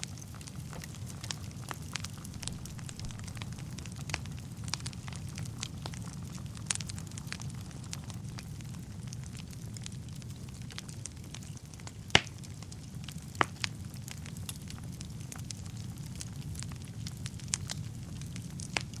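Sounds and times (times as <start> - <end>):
fire crackles and pops: 0.0 - 19.0
low rumble of flames: 0.0 - 19.0.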